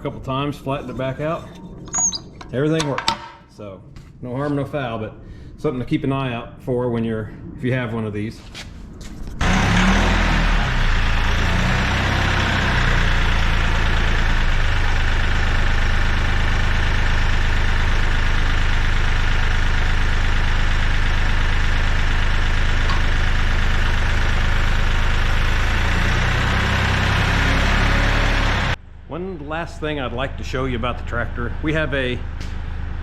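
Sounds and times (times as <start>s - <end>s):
tractor diesel engine running: 9.4s - 33.0s.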